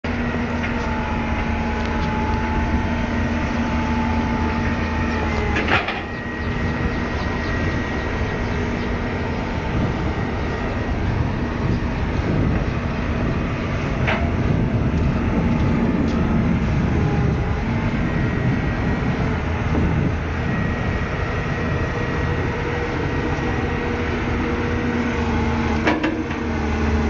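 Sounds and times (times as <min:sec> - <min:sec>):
excavator engine rumble: 0:00.1 - 0:27.0
hydraulic whine: 0:00.1 - 0:27.0.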